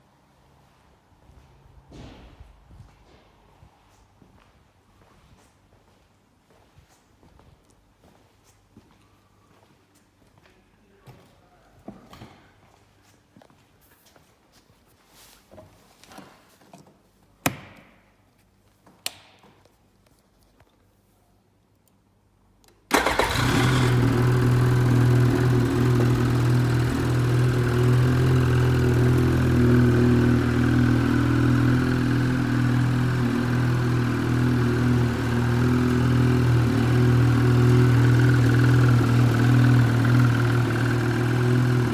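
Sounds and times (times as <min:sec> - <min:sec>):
snowmobile engine starting and idling: 0:22.9 - 0:41.9.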